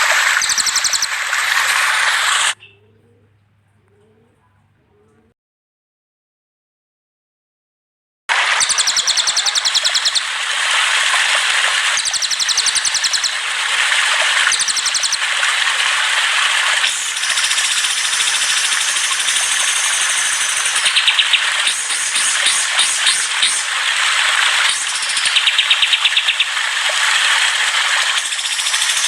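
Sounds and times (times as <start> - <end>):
songbird trills: 0.0 - 1.4, 2.3 - 5.3, 8.6 - 10.4, 12.0 - 13.4, 14.5 - 15.2, 16.9 - 23.7, 24.6 - 26.6, 28.2 - 29.0
steady hiss: 16.8 - 26.1.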